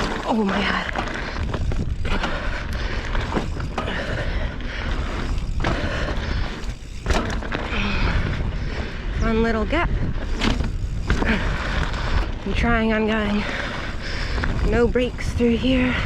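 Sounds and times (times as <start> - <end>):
bike knocking over bumps: 0.0 - 8.3, 10.2 - 12.2
bike tyres on dirt: 0.0 - 16.0
wind rushing over microphone: 0.0 - 16.0.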